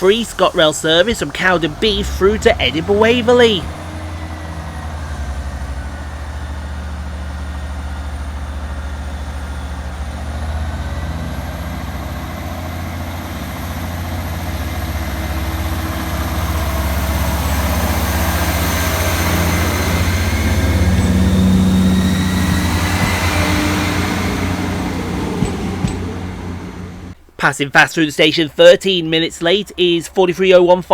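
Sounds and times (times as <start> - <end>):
diesel train engine drone: 0.0 - 27.4, 28.1 - 30.9.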